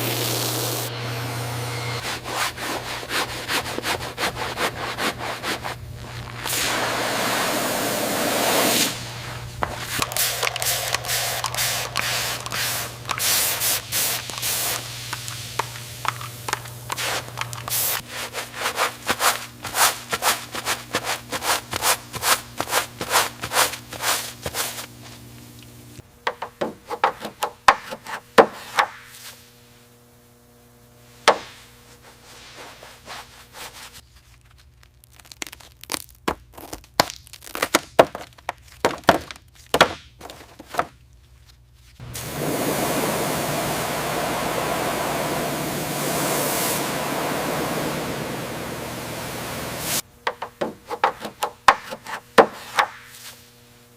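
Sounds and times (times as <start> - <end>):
steady low hum: 0.0 - 34.2, 41.0 - 53.9
hand tools knocking and scraping: 26.2 - 29.0, 50.2 - 53.0.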